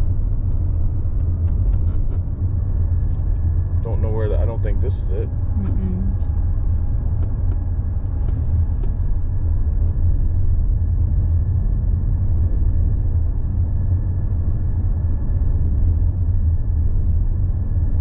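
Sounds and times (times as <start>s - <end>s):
tyres and engine rumble: 0.0s - 18.0s
thin steady whine: 2.8s - 6.4s.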